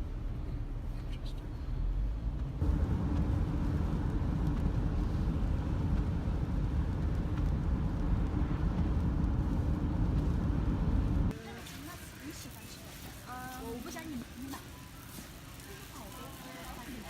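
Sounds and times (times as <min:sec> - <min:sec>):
car cabin road rumble: 0:00.0 - 0:11.4.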